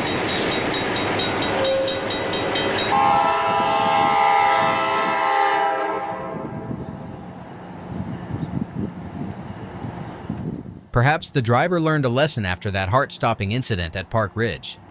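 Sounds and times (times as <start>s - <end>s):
train rolling with clicking: 0.0s - 3.0s
train horn chord: 2.9s - 6.9s.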